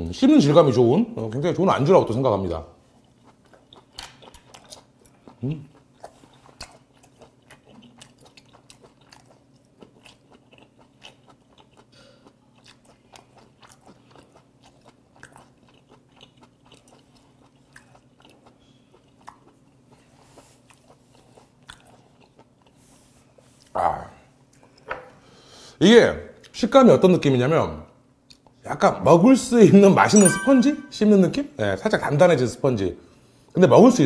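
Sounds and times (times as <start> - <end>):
man chewing: 2.9 - 23.8.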